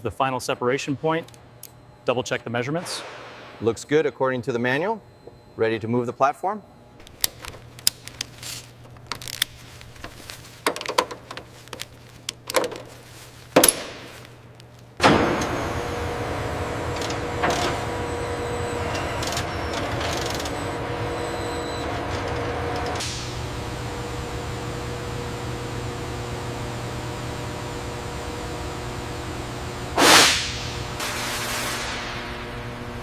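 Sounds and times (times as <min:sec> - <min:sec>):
mechanical hum with hiss: 0:00.0 - 0:33.0
metal parts knocking and clicking: 0:10.6 - 0:12.9.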